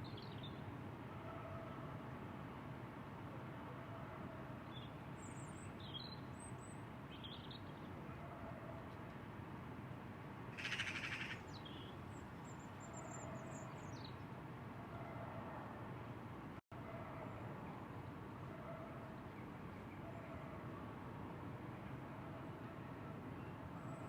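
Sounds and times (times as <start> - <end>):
faint outdoor background hiss: 9.0 - 14.8.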